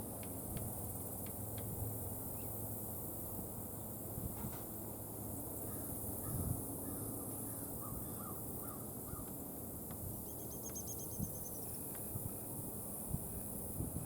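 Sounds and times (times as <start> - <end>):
distant bird calling: 5.6 - 9.4, 10.2 - 11.7.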